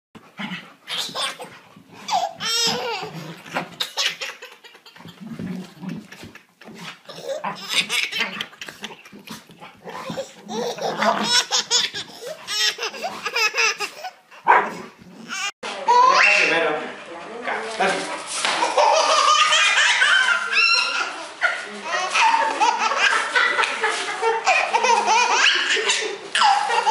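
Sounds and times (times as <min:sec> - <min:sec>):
baby laughing hysterically: 0:00.9 - 0:14.2, 0:18.6 - 0:21.2, 0:21.9 - 0:26.9.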